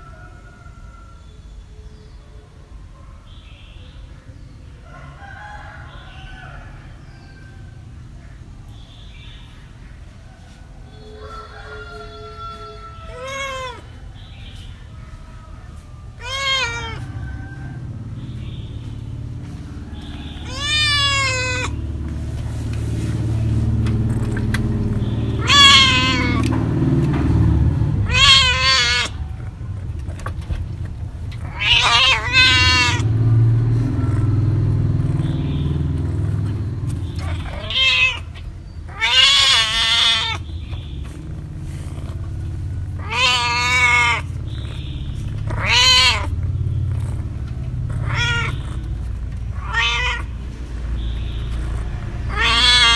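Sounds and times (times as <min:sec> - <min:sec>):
cat meowing: 0:12.6 - 0:14.0, 0:16.2 - 0:17.8, 0:19.8 - 0:21.8, 0:24.9 - 0:26.6, 0:28.0 - 0:29.6, 0:31.3 - 0:33.2, 0:33.8 - 0:52.9.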